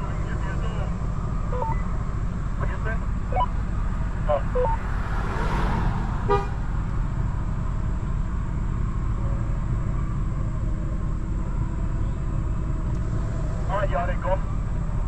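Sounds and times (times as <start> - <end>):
vehicle engine rumble: 0.0 - 15.0
horn toot: 6.2 - 6.6.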